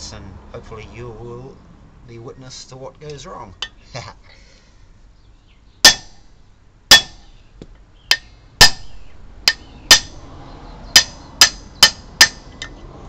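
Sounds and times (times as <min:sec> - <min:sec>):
hammer striking metal punch: 0:05.8 - 0:06.2, 0:06.9 - 0:07.2, 0:08.1 - 0:10.2, 0:10.9 - 0:12.8.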